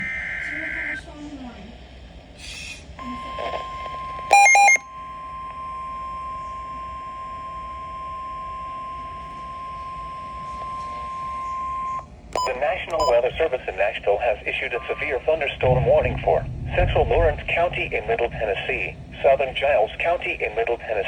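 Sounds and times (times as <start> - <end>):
steady alarm tone: 0.0 - 1.0, 3.0 - 13.3, 15.6 - 21.0
loud electronic beep: 4.3 - 4.9, 12.4 - 13.2.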